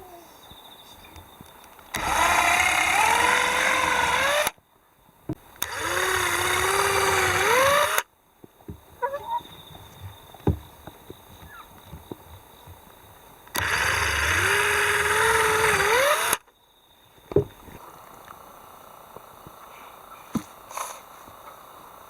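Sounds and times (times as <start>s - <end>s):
small engine running: 1.9s - 4.6s, 5.6s - 8.0s, 13.5s - 16.4s
light knocks and clicks: 8.4s - 13.0s, 17.2s - 17.8s.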